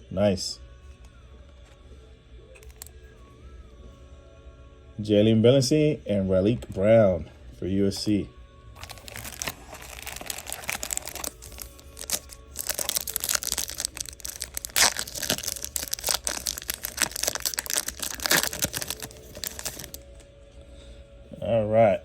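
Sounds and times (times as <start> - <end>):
cards and packaging rustling: 8.8 - 20.2.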